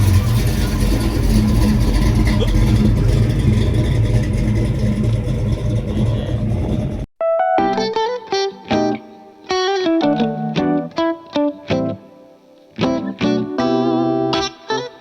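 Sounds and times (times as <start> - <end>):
car engine running: 0.0 - 7.1
electric guitar music: 7.2 - 15.0.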